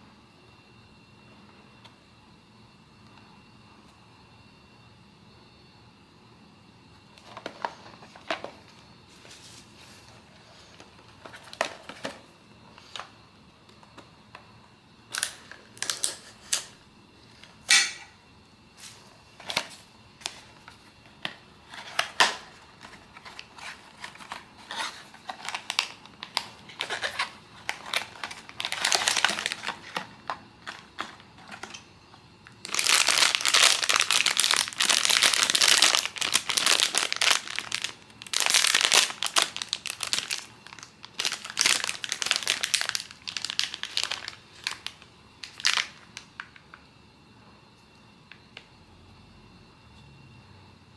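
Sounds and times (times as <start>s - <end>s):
plastic wrapper crinkling: 15.1s - 16.7s, 19.4s - 46.6s.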